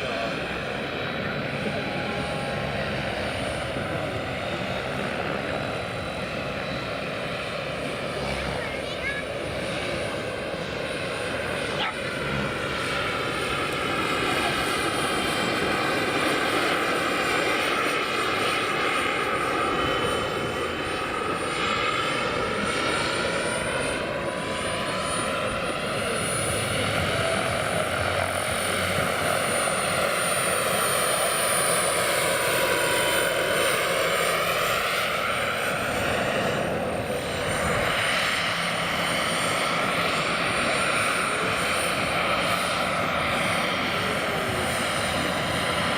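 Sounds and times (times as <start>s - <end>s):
helicopter rotor noise: 0.0s - 45.9s
model helicopter turbine whine: 0.0s - 45.9s.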